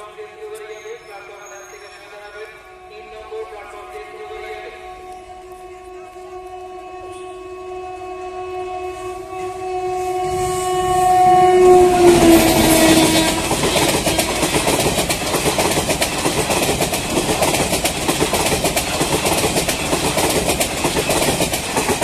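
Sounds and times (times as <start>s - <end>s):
locomotive horn: 1.7s - 14.6s
train wheels clickety-clack: 11.9s - 22.0s.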